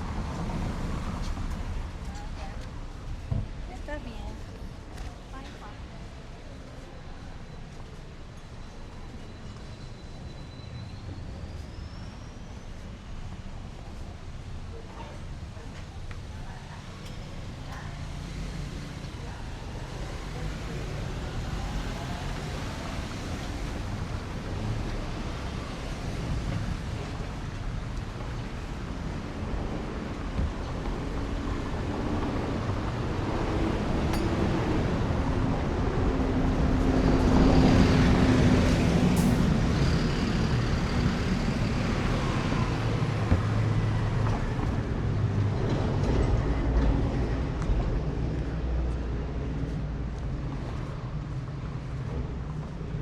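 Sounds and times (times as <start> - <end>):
city street traffic rumble: 0.0 - 53.0
passing vehicle engines humming: 16.3 - 53.0.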